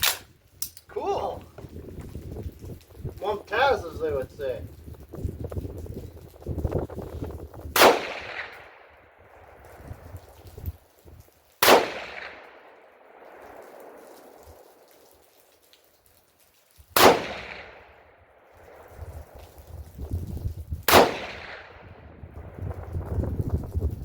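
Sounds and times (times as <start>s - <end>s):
rifle shots with echo: 7.7s - 9.4s, 11.6s - 14.8s, 17.0s - 18.9s, 20.9s - 22.0s.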